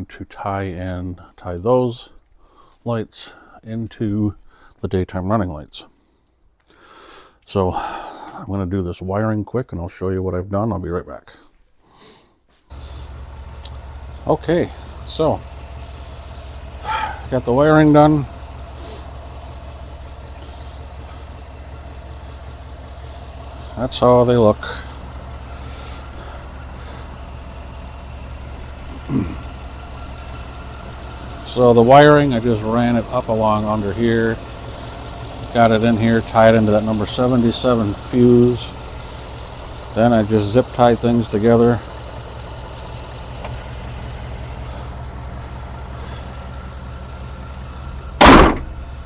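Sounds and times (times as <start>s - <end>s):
pickup engine idling: 12.7s - 49.0s
short falling vocal sound: 28.9s - 29.4s.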